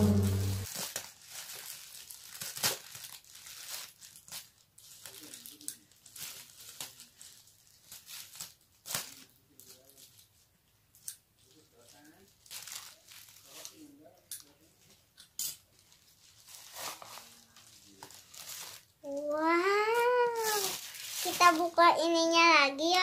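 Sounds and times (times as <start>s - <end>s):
plastic bag crinkling: 0.1s - 10.3s, 11.4s - 14.6s, 15.4s - 22.3s.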